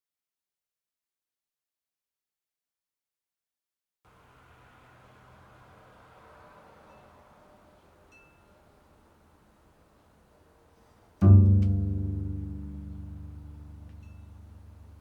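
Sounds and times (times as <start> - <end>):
low musical note ringing: 4.2 - 10.5, 11.2 - 15.0.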